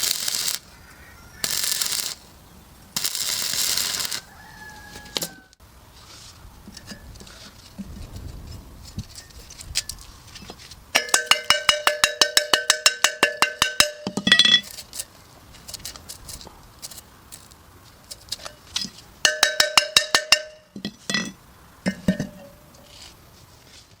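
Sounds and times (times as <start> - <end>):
rapid ringing metallic tapping: 11.0 - 15.0, 19.2 - 21.3.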